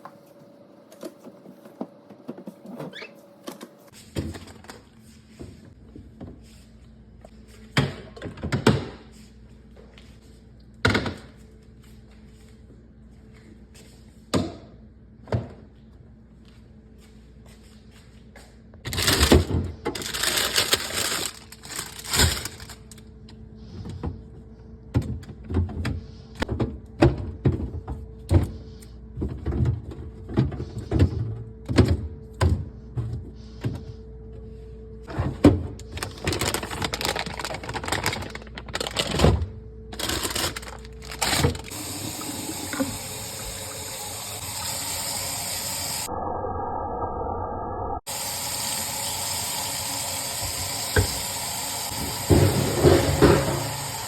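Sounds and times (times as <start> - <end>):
bottles and shelves clunking: 35.1 - 43.8, 51.9 - 54.0.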